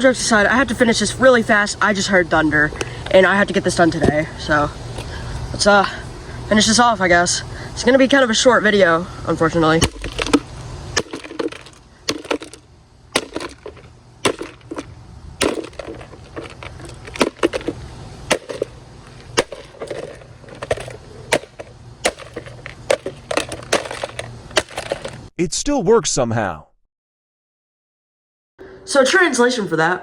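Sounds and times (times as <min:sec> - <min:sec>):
coffee maker being smashed: 0:09.8 - 0:25.3.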